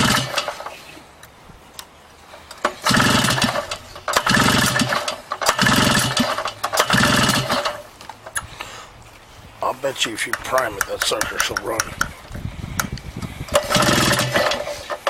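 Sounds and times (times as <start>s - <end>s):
snowmobile engine cranking: 0.0s - 0.8s, 2.6s - 7.9s, 12.8s - 15.0s.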